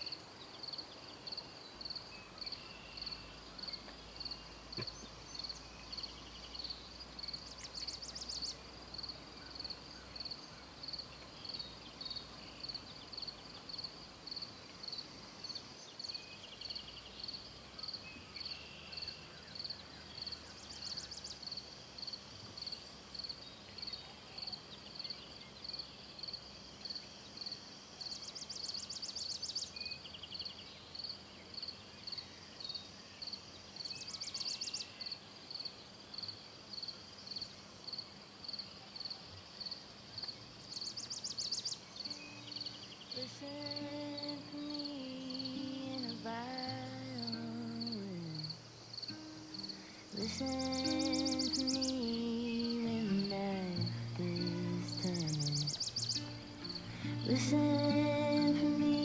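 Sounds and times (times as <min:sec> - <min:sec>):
insect high chirp: 0:00.0 - 0:59.0
fast high-pitched insect trills: 0:42.1 - 0:59.0.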